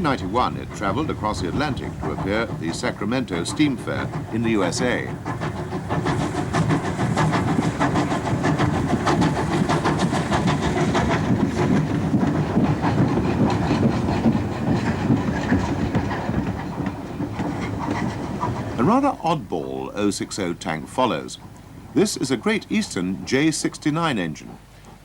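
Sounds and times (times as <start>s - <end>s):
steam hiss: 0.0s - 5.2s
locomotive clatter: 0.0s - 25.0s
steam locomotive chuffing: 0.0s - 25.0s.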